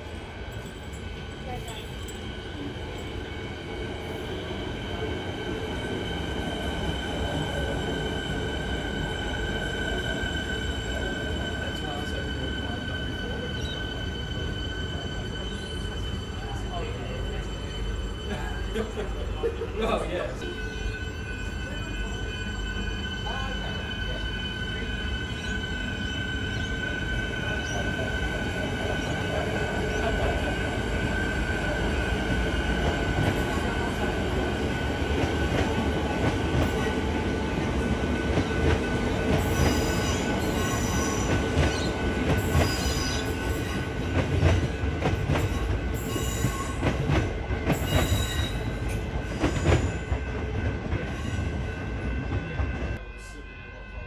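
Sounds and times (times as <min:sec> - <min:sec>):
train rumble: 0:00.0 - 0:53.4
train wheel squeal: 0:06.1 - 0:19.2, 0:20.4 - 0:34.1, 0:38.2 - 0:54.0.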